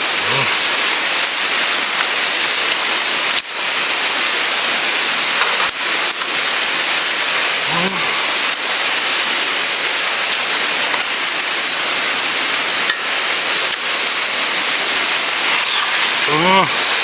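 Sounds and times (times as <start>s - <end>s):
river flowing over rocks: 0.0s - 17.0s
thin high tone: 15.0s - 17.0s.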